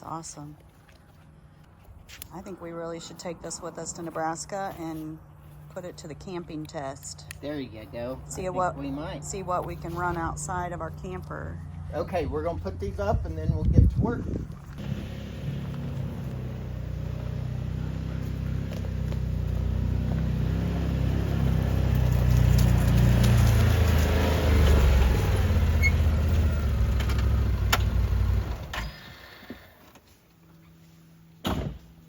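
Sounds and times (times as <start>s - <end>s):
vehicle engine running: 14.5s - 28.8s.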